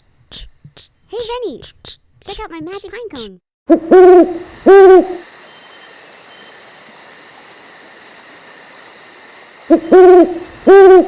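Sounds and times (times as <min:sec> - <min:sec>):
owl hooting: 0:03.7 - 0:05.3, 0:09.7 - 0:11.0.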